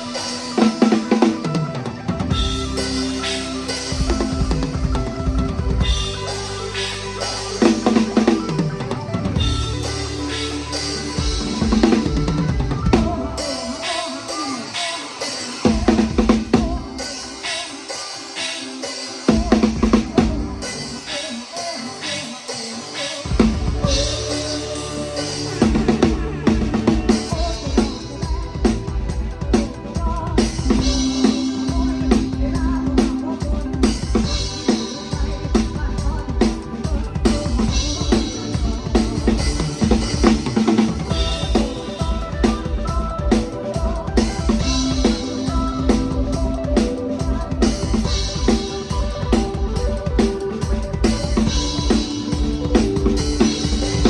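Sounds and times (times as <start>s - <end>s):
acoustic drum kit: 0.0s - 54.0s
live band music: 0.0s - 54.0s
held bass notes: 1.5s - 13.4s.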